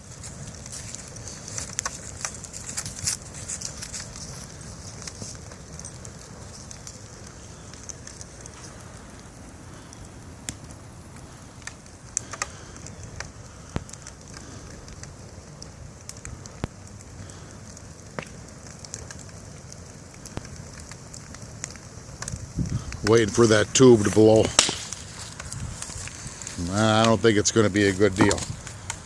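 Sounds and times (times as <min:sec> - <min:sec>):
fire crackling: 0:00.0 - 0:29.0
sharp pops: 0:22.2 - 0:27.2.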